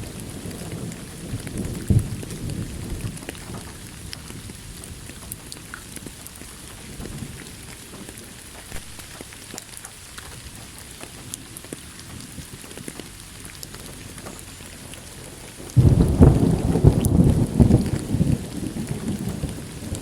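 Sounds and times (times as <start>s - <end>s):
loud rumble of thunder: 0.0s - 5.3s, 15.6s - 20.0s
raindrops ticking: 0.0s - 20.0s
steady rain falling: 0.0s - 20.0s.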